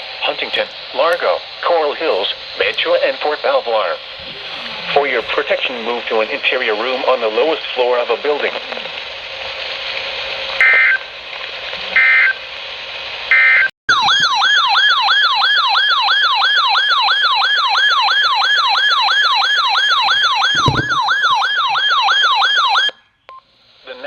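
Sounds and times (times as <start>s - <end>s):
broadcast hiss: 0.0s - 14.1s, 16.0s - 21.7s, 23.4s - 24.0s
fast-repeating siren tone: 13.3s - 23.0s.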